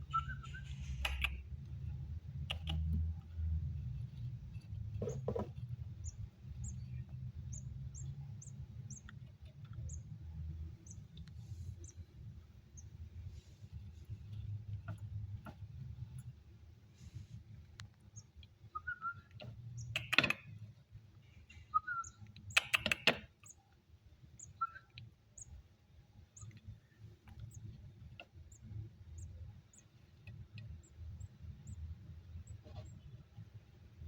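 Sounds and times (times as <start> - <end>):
bush lark chirps: 0.0 - 1.4, 18.2 - 20.5, 24.4 - 25.5.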